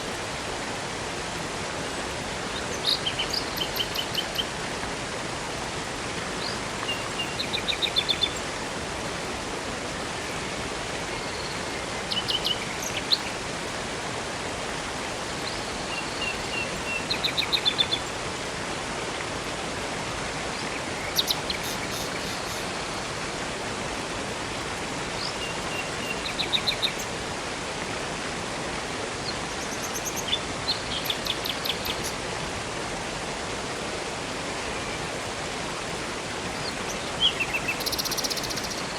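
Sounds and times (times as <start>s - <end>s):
flowing river water: 0.0s - 38.9s
small birds singing: 2.4s - 4.5s, 6.4s - 8.5s, 11.0s - 13.4s, 15.4s - 18.1s, 20.5s - 22.8s, 25.2s - 27.1s, 29.2s - 32.2s, 36.6s - 38.9s.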